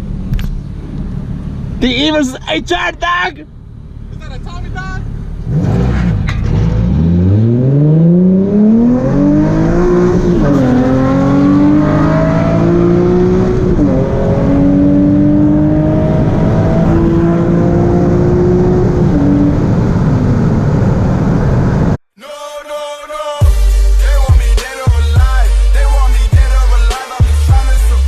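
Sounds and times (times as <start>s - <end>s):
car engine accelerating hard: 5.3s - 22.0s.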